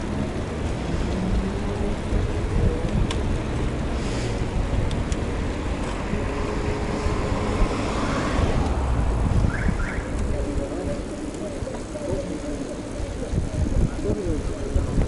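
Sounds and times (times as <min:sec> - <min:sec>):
road noise: 0:00.0 - 0:15.0
wind buffeting microphone: 0:00.0 - 0:15.0.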